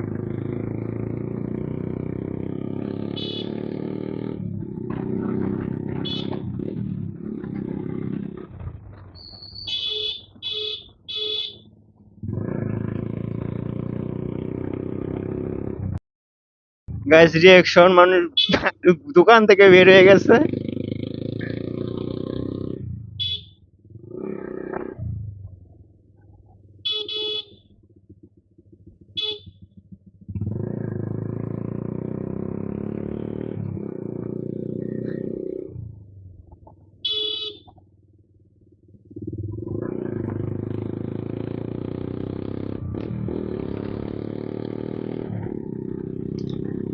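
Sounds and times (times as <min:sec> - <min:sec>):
motorcycle engine running: 0:00.0 - 0:16.0, 0:19.5 - 0:46.9
short high horn-like beeps: 0:03.1 - 0:03.6, 0:06.0 - 0:06.4, 0:09.6 - 0:11.6, 0:18.4 - 0:18.7, 0:23.2 - 0:23.5, 0:26.9 - 0:27.6, 0:29.2 - 0:29.5, 0:37.1 - 0:37.7.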